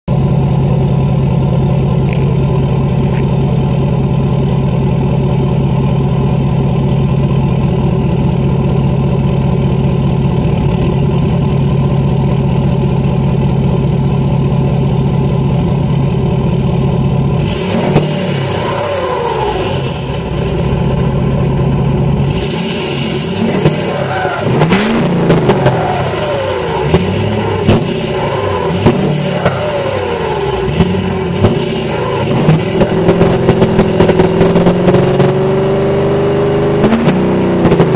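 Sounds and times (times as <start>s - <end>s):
diesel engine idling and revving: 0.0s - 37.9s
high turbo whistle: 17.4s - 34.7s.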